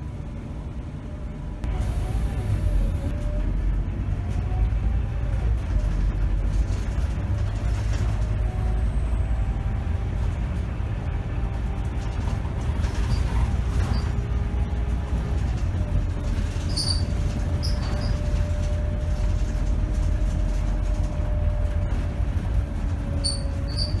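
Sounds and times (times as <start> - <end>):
bus diesel engine rumbling: 0.0 - 24.0.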